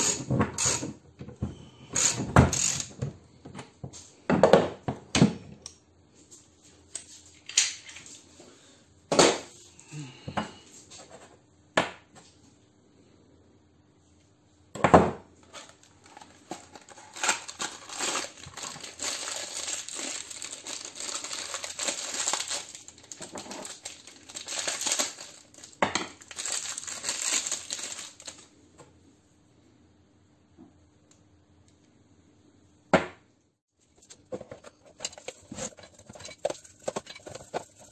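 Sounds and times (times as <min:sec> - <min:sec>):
rattling and crinkling: 0:15.4 - 0:28.4, 0:33.8 - 0:37.9
metal parts and tools clinking: 0:34.3 - 0:37.9.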